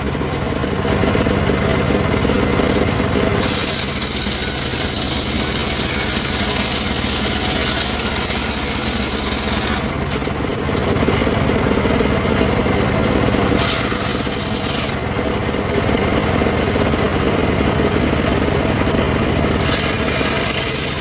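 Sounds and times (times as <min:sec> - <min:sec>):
wood saw engine running: 0:00.0 - 0:21.0
saw blade hissing through wood: 0:03.4 - 0:09.9, 0:13.6 - 0:15.0, 0:19.6 - 0:21.0.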